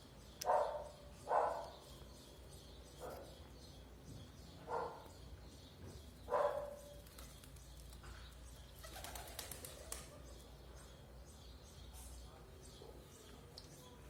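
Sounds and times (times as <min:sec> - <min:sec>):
wings clapping: 0:08.8 - 0:10.2.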